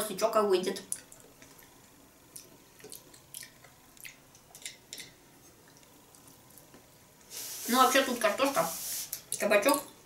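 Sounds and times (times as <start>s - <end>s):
faint chewing and mouth clicks: 0.9s - 6.9s.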